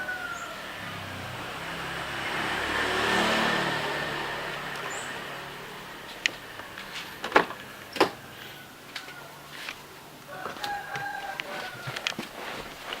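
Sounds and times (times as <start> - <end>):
car engine: 0.0 - 8.2.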